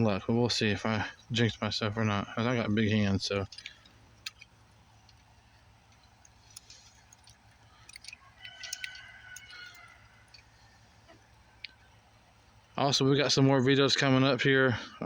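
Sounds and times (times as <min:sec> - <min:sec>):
small metallic clicks and ticks: 0:03.3 - 0:11.9.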